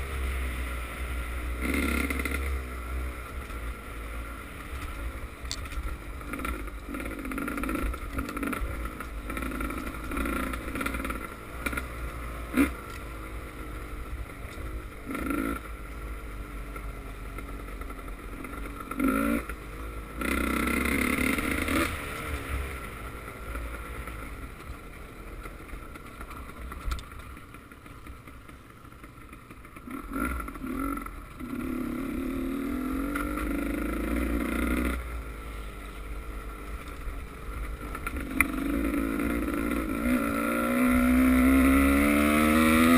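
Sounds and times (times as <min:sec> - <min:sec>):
motocross engines revving: 0:01.4 - 0:02.8, 0:06.1 - 0:13.0, 0:18.4 - 0:22.9, 0:37.8 - 0:42.9.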